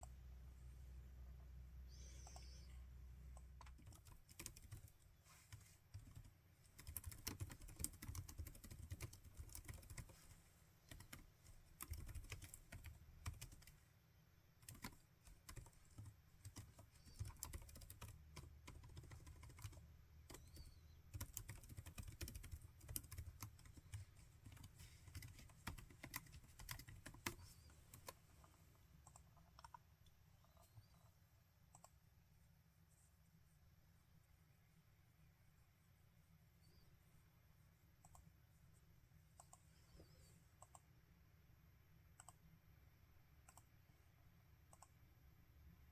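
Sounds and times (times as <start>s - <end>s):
typing on laptop keyboard: 3.4s - 5.0s, 5.9s - 10.2s, 10.9s - 13.8s, 14.6s - 28.2s, 29.0s - 29.8s, 42.2s - 42.4s.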